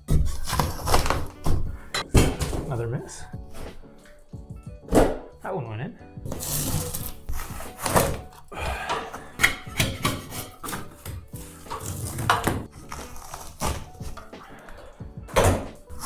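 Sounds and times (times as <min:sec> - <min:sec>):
ceiling tiles knocking and thunking: 0:00.0 - 0:05.4, 0:06.2 - 0:16.0
light background music: 0:00.0 - 0:16.0
tiles scraping: 0:00.1 - 0:02.7, 0:06.3 - 0:14.7.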